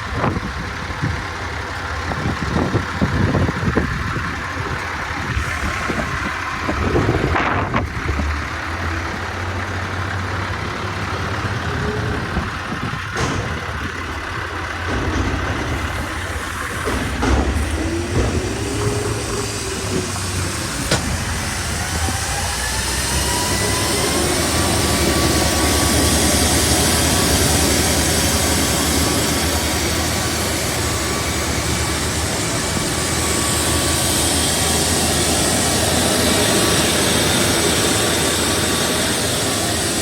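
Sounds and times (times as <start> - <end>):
diesel truck engine idling: 0.0 - 40.0
sharp clicks or knocks: 13.2 - 21.3.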